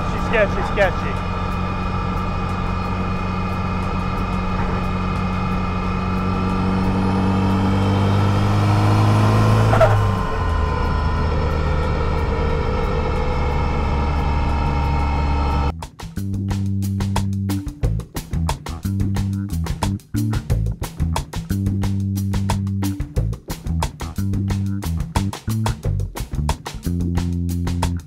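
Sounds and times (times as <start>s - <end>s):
car engine accelerating: 0.0s - 15.8s.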